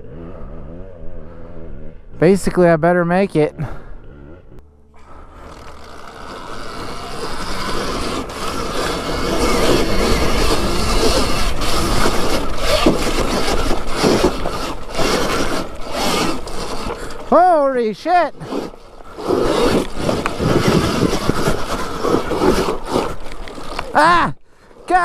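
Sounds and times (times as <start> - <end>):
electric dirt bike climbing: 0.0 - 25.0
tyre spinning in dirt: 5.0 - 24.3
knocks and scrapes on ground: 5.1 - 24.2.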